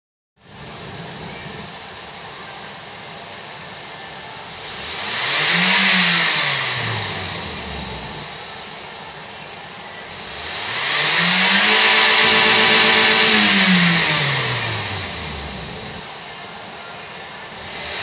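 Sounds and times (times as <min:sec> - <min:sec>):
car engine revving: 0:04.5 - 0:09.1, 0:10.0 - 0:16.4, 0:17.5 - 0:18.0.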